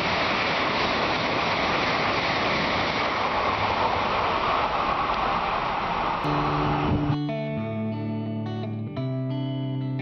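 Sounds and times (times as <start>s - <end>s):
train passing rushing roar: 0.0s - 7.4s.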